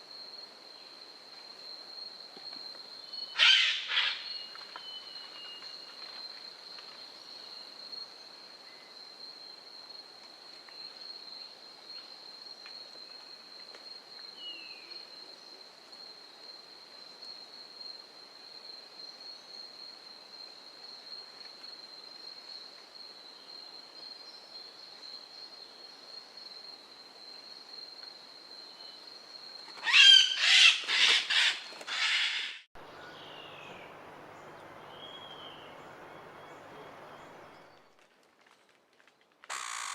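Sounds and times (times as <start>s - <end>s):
loud bird call: 3.4s - 4.3s, 29.8s - 37.7s, 39.5s - 39.9s.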